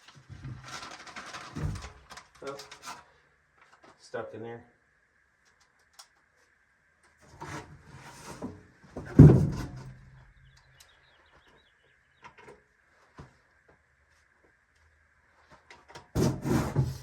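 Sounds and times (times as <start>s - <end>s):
parts rustling and scraping: 0.0s - 4.0s, 5.4s - 10.1s, 15.2s - 17.0s.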